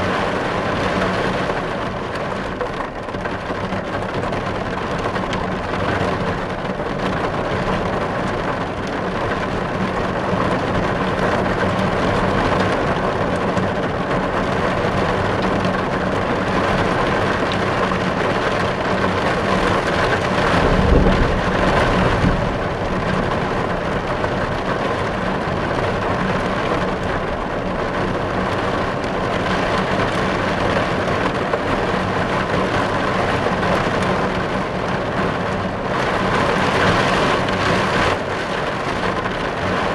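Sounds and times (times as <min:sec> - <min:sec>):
rain drumming on car windows: 0:00.0 - 0:39.9
low rumble: 0:20.1 - 0:25.8.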